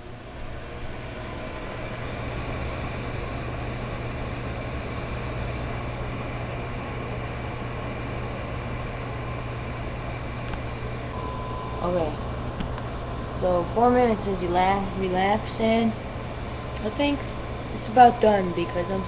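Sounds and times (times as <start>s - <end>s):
microwave oven humming: 0.0s - 19.0s.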